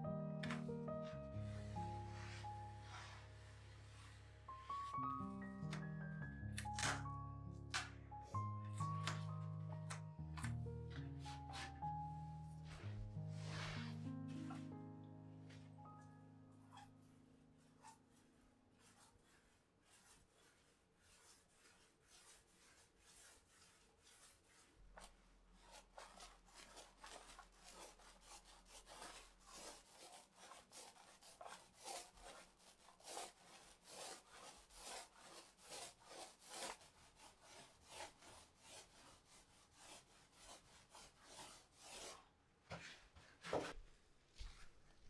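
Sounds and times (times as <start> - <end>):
hand rubbing a surface: 11.2 - 14.6.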